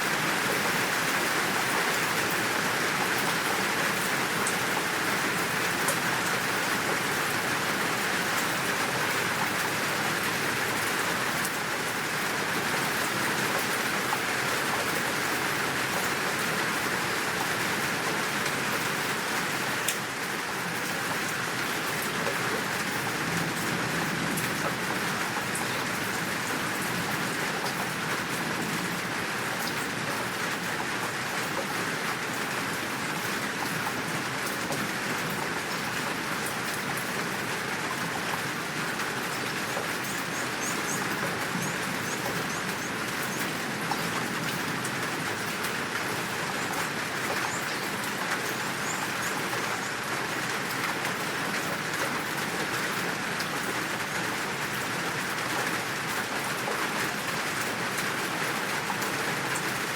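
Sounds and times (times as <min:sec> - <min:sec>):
heavy rain downpour: 0:00.0 - 0:59.9.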